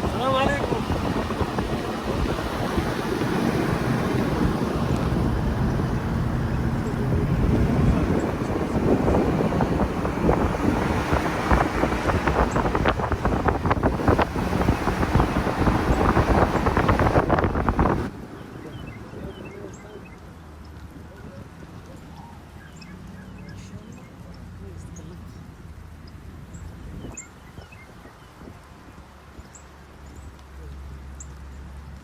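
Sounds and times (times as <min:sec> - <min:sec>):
wind buffeting the microphone: 0:00.0 - 0:19.9, 0:26.1 - 0:30.4.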